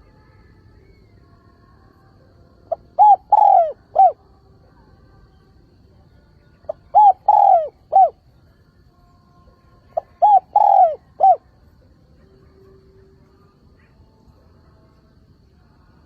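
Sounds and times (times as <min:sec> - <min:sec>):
dove cooing: 0:02.7 - 0:04.2, 0:06.7 - 0:08.2, 0:09.9 - 0:11.5.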